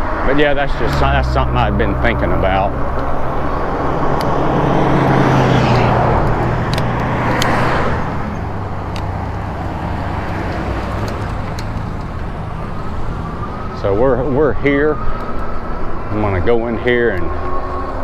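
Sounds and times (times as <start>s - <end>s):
car passing close by: 0.0s - 13.8s
steady traffic noise: 0.0s - 18.0s.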